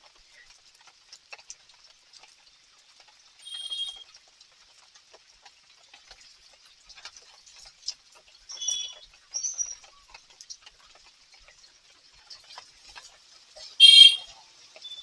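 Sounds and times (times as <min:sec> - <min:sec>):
rain dripping and pattering: 0:00.0 - 0:15.0
high-pitched animal chirping: 0:03.5 - 0:04.0.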